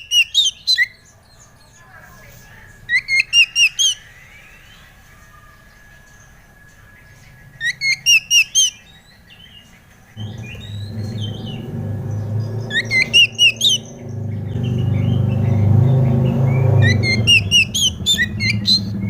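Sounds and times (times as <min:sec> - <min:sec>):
bird whistling song: 0:00.0 - 0:01.9, 0:02.8 - 0:19.0
low steady hum: 0:10.0 - 0:16.8.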